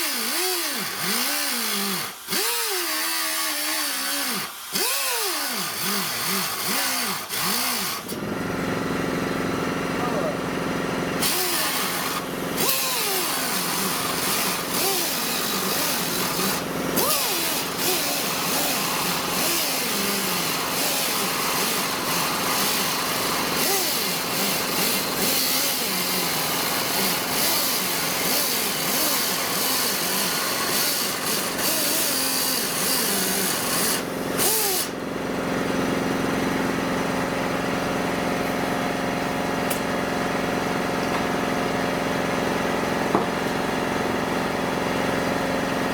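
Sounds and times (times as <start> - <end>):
cut-off wheel grinding sheet metal: 11.2 - 35.0.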